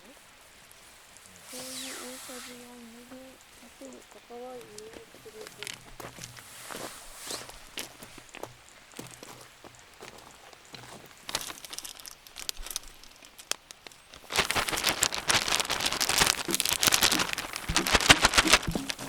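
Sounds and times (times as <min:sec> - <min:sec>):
faint clicks and crackles: 0:00.6 - 0:19.0
hot pan sizzling: 0:14.2 - 0:19.0.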